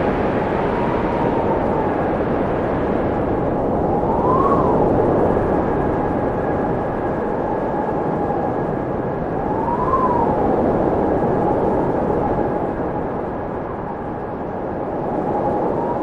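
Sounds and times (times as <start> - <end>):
wind whistling: 0.0 - 16.0.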